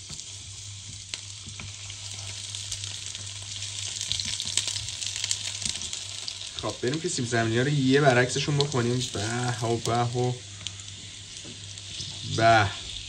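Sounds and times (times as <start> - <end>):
potato slices sizzling in oil: 0.0 - 13.0
steady low hum: 6.2 - 13.0.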